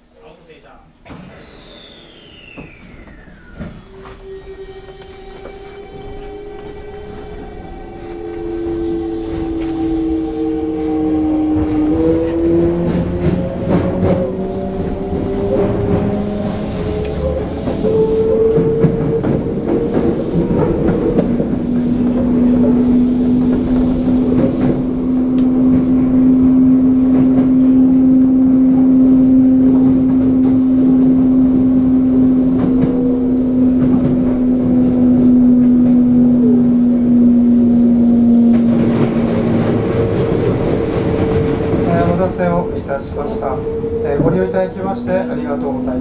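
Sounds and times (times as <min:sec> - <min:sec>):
wheels rumbling on rail: 0:01.8 - 0:46.0.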